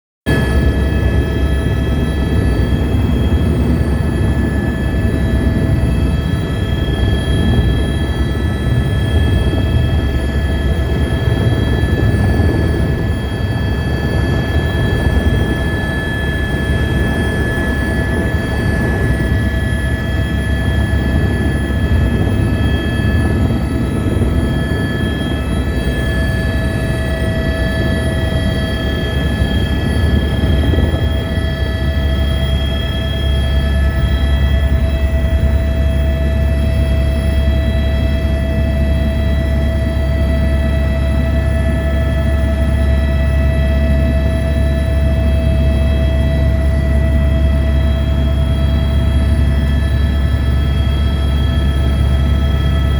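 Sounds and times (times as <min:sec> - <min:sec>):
helicopter running: 0:00.3 - 0:52.9.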